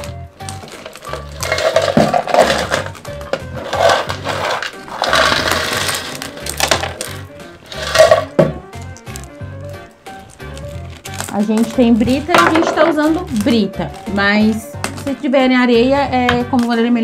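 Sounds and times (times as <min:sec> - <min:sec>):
crushed stone pouring into metal bin: 0:00.7 - 0:03.0, 0:03.6 - 0:07.1, 0:07.7 - 0:08.3.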